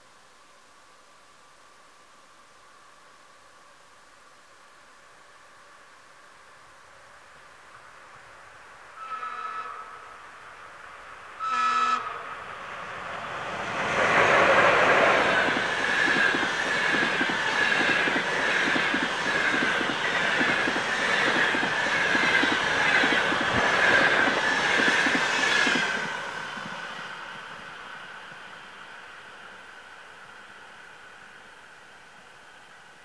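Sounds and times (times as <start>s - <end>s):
locomotive horn blast: 9.0s - 10.2s, 11.4s - 12.3s
train rushing past: 10.5s - 31.4s.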